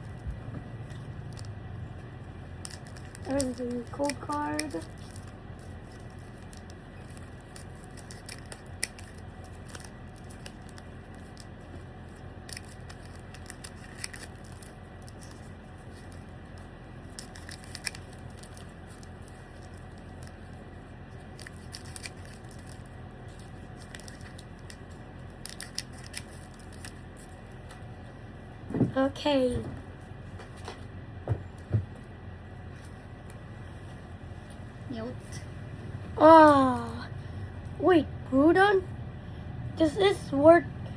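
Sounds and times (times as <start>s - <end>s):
trading cards rustling: 0.0s - 27.9s
steady low hum: 0.0s - 40.9s
wrapper crinkling: 2.6s - 20.6s, 21.2s - 27.7s.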